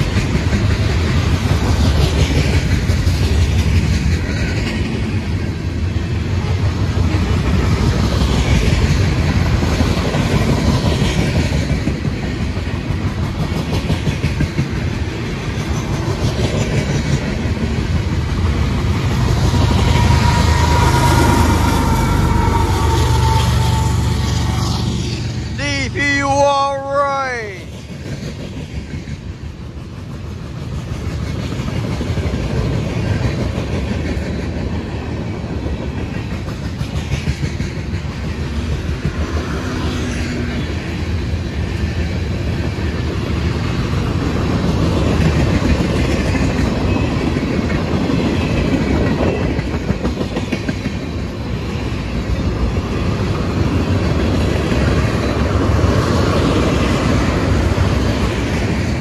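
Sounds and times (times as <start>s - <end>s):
rhythmic clickety-clack: 0.0s - 5.5s, 7.0s - 21.4s, 27.7s - 51.9s
freight train wheels rumbling: 0.0s - 59.0s.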